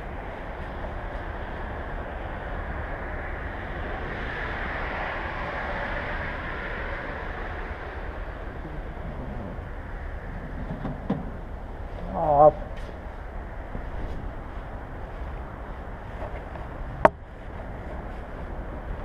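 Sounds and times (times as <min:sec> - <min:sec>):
wind noise on microphone: 0:00.0 - 0:19.0.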